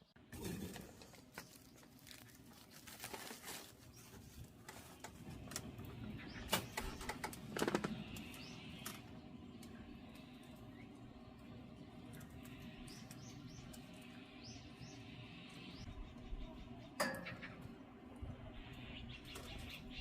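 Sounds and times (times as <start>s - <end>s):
wood fire crackling: 0.3s - 16.0s.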